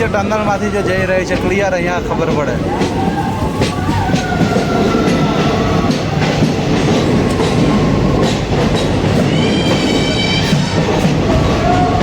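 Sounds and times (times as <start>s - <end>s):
train rumbling on rails: 0.0s - 12.0s
high wheel squeal: 9.2s - 12.0s.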